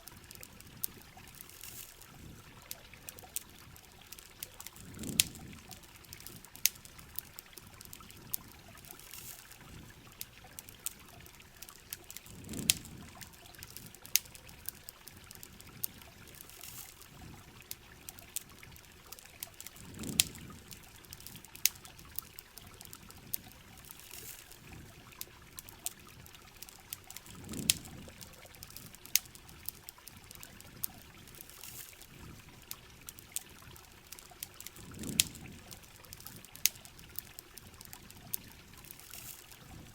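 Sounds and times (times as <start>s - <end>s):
rain and running water: 0.0s - 39.9s
sharp clicks and pops: 10.6s - 17.1s, 19.2s - 24.6s, 34.1s - 39.8s.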